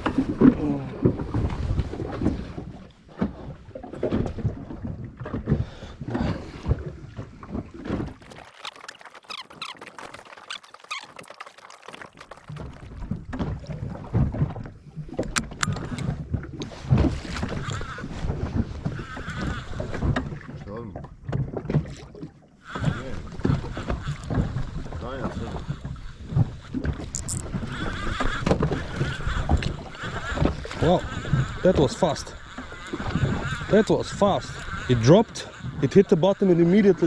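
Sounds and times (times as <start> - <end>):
water slapping against boat hull: 7.1 - 18.9
knocks and clicks: 27.2 - 27.5.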